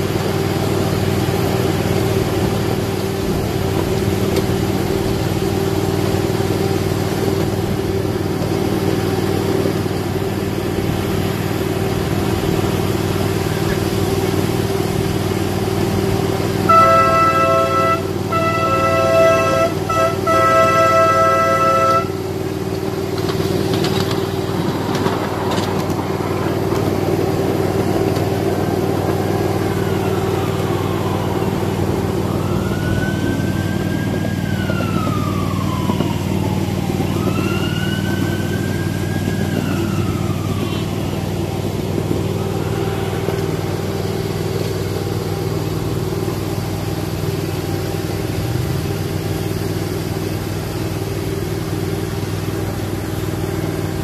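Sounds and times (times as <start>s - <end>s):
miniature train engine drone: 0.0s - 54.0s
rising and falling squeals: 16.2s - 41.6s.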